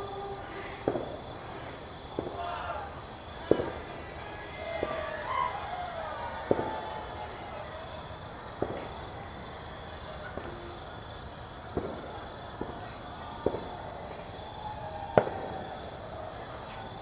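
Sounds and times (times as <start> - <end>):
crickets chirping: 0.0 - 17.0
distant fireworks bangs: 0.0 - 17.0.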